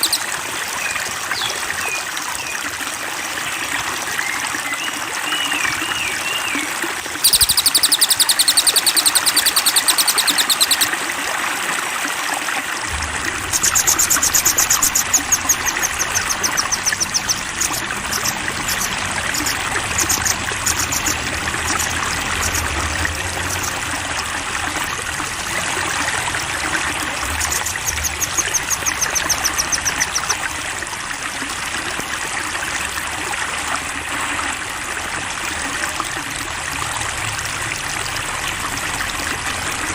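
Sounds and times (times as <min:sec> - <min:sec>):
songbirds trilling: 0:00.0 - 0:01.6, 0:07.2 - 0:10.9, 0:13.0 - 0:23.9, 0:27.0 - 0:30.4
trickling water: 0:00.0 - 0:39.9.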